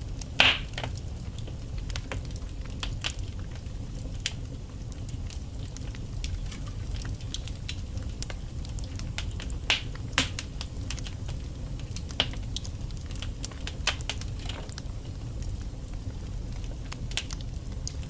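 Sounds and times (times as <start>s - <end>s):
burning logs crackling: 0.0s - 18.0s
low rumble of flames: 0.0s - 18.0s
sharp pops of fire: 0.2s - 1.2s, 6.2s - 11.1s, 11.9s - 14.8s.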